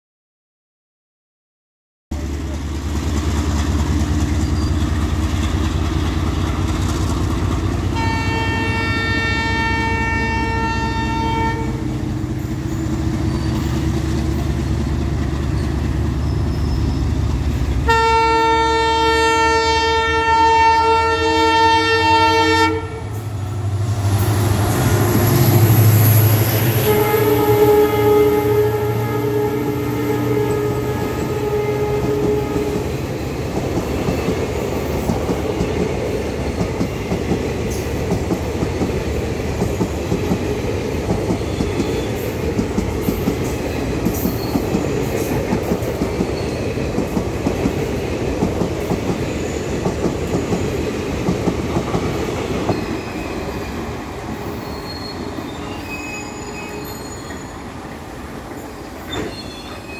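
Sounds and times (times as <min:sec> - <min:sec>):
train rumble: 0:02.1 - 0:59.9
train horn: 0:07.8 - 0:12.1, 0:17.8 - 0:23.3, 0:24.3 - 0:33.1.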